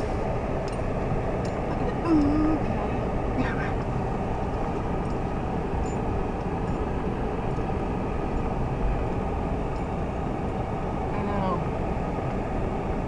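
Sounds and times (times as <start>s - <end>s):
car engine rumble: 0.0s - 13.0s.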